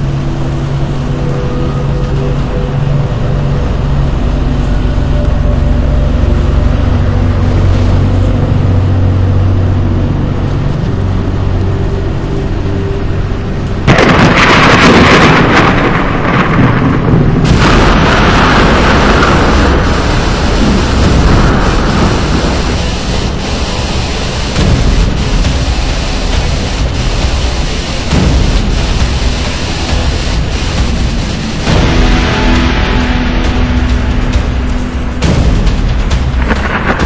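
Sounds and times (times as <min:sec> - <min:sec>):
loud rush of storm noise: 0:00.0 - 0:37.0
low vehicle rumble: 0:00.0 - 0:37.0.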